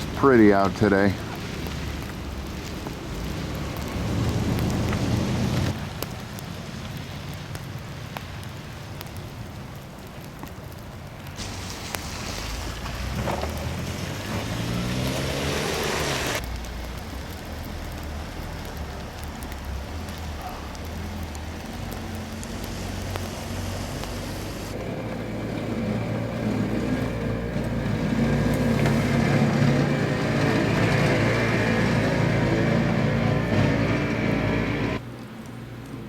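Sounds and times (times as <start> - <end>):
vehicle passing: 0.0 - 5.7, 11.4 - 16.4, 20.4 - 35.0
traffic rumble: 0.0 - 36.0
snowplow engine running: 21.1 - 35.0.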